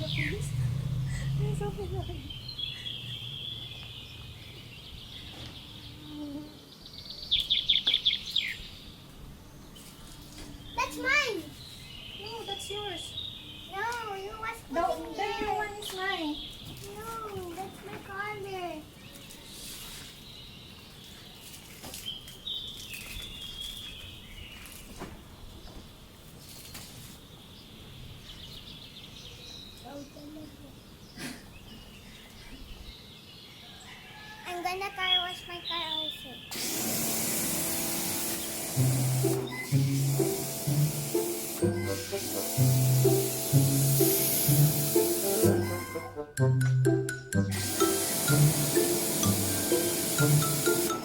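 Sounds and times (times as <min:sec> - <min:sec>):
bird chirping: 0:00.0 - 0:09.9, 0:10.5 - 0:14.7, 0:35.0 - 0:36.6
outdoor background noise: 0:00.0 - 0:51.0.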